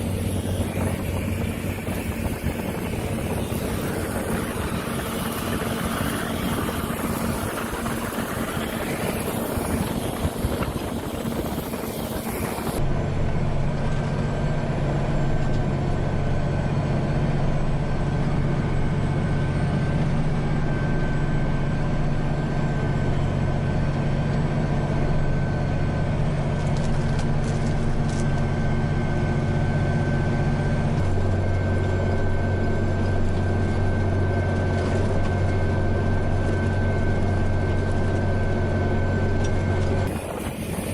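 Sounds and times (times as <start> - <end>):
wind on microphone: 0.0 - 12.8, 40.0 - 40.9
farm machine engine humming: 0.0 - 40.9
high whine: 0.0 - 40.9.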